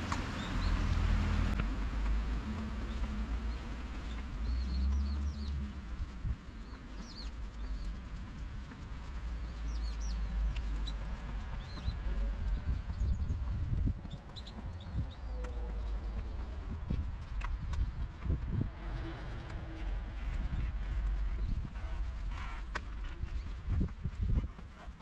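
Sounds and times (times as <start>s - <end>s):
small birds chirping: 0.0s - 1.0s, 1.6s - 18.1s
low rumble: 0.0s - 25.0s.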